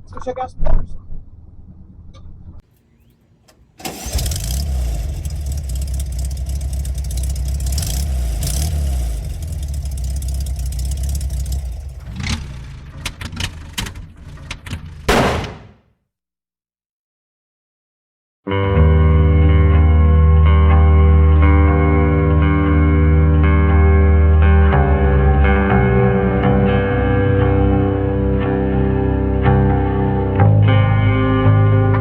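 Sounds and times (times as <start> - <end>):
engine starting and idling: 2.7 - 15.6.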